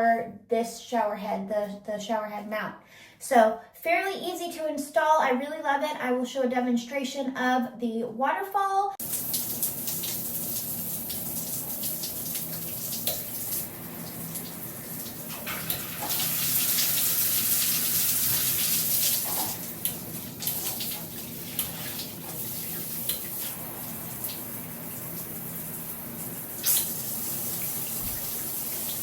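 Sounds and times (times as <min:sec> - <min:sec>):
shower water spraying: 0:09.0 - 0:29.0.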